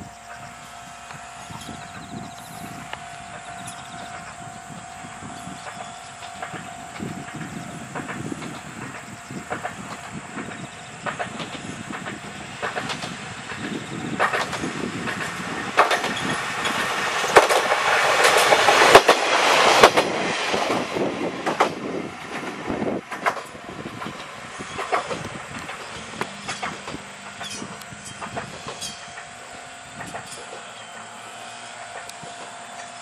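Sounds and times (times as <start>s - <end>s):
diesel railcar passing: 0.0s - 33.0s
wheels clacking over rail joints: 0.0s - 33.0s.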